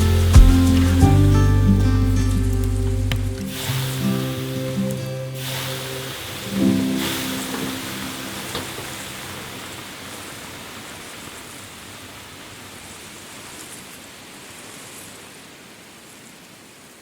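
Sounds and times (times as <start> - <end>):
music: 0.0 - 8.8
steady hiss: 0.0 - 17.0.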